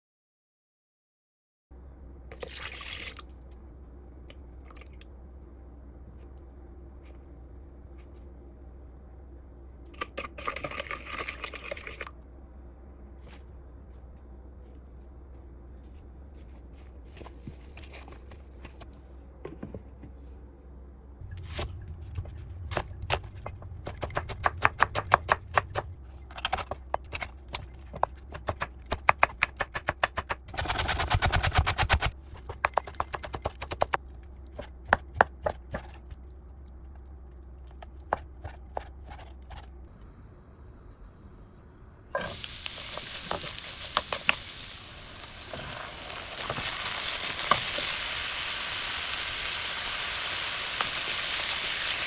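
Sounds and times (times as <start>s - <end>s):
food sizzling in hot oil: 42.2s - 52.0s.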